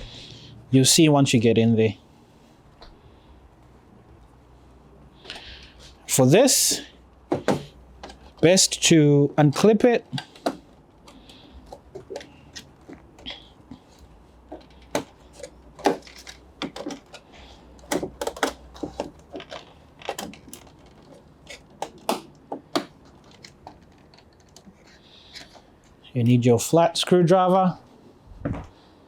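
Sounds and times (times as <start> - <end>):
plastic clips clicking and tapping: 17.8 - 24.7.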